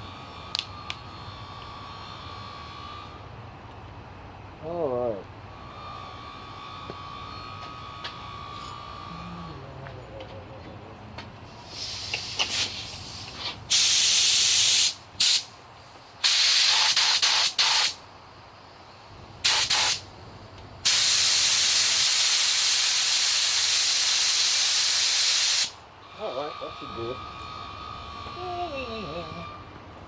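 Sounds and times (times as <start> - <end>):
paint spray gun hissing: 11.6 - 15.5, 16.2 - 18.0, 19.4 - 20.0, 20.9 - 25.8.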